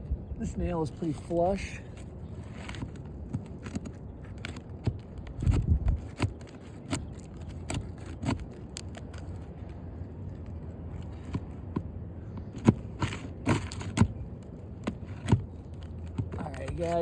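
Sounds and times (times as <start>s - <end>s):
hand tool prying at nail: 2.6s - 9.4s, 11.1s - 14.2s, 14.8s - 17.0s.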